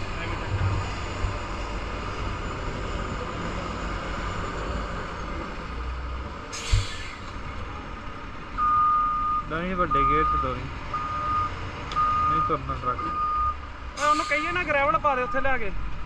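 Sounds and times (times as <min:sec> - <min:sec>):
air brake hiss: 0:06.5 - 0:07.3, 0:14.0 - 0:14.6.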